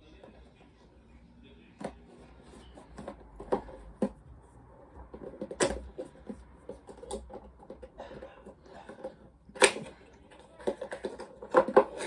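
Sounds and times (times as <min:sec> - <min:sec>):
plastic toy clicking and knocking: 0:02.9 - 0:04.2, 0:05.0 - 0:12.0.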